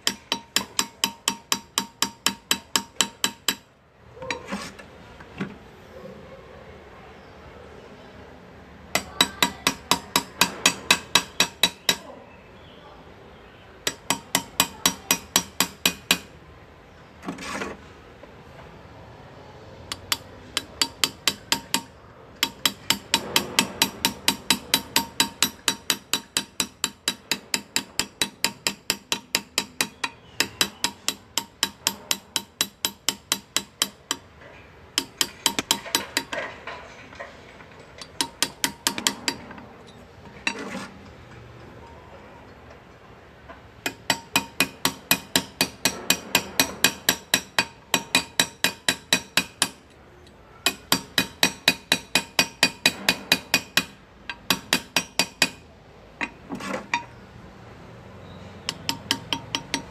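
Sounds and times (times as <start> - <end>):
hammer tapping graver into metal: 0.0 - 3.7, 9.0 - 12.1, 13.8 - 16.3, 19.9 - 34.3, 35.0 - 36.5, 38.0 - 40.9, 43.8 - 50.0, 50.6 - 57.1, 58.6 - 59.9.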